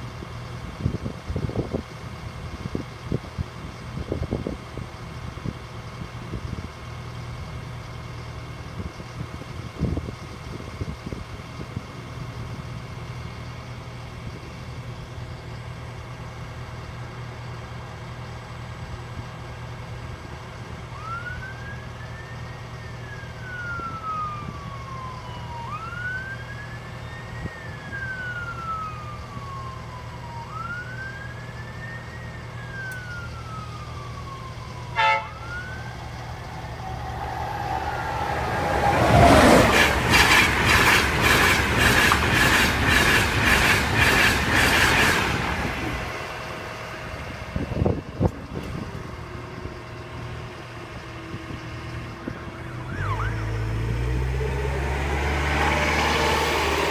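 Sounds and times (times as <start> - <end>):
train horn blast: 34.9 - 35.4
electric train rushing past: 34.9 - 56.9
train wheels clattering: 38.8 - 45.7.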